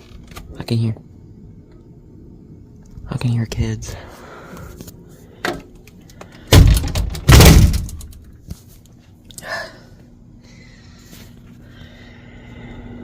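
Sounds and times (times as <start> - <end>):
heavy thuds: 6.5 - 8.2.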